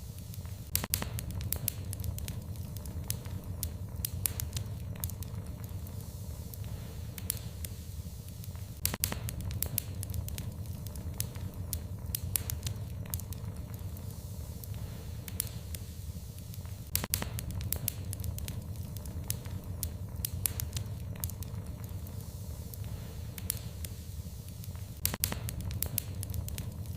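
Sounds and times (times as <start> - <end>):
sharp pops and snaps: 0.0 - 26.9
steady low rumble: 0.0 - 26.9
wood fire crackling: 0.0 - 26.9.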